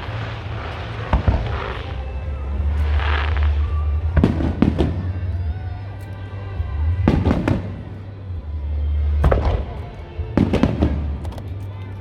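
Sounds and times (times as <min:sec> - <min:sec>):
fireworks crackling: 0:00.0 - 0:05.5
music with low bass: 0:00.0 - 0:12.0.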